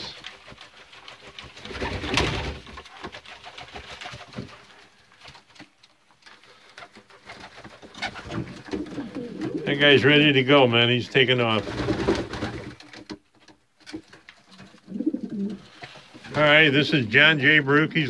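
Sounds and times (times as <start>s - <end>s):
pigeons cooing: 8.0s - 10.3s, 14.7s - 16.0s.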